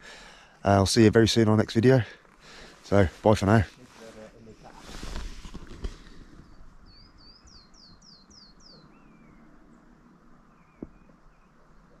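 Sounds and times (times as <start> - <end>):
songbird singing: 0.8 - 12.0
faint bird calls: 4.3 - 12.0.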